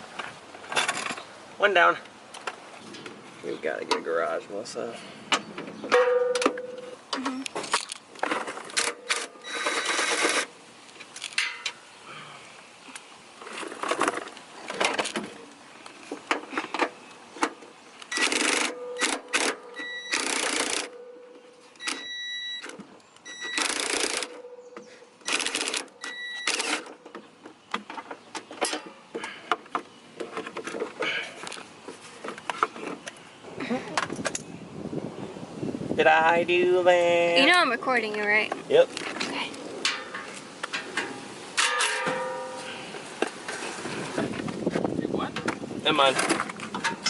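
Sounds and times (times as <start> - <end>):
hand tools clicking and rattling: 16.3 - 21.1, 39.8 - 42.7.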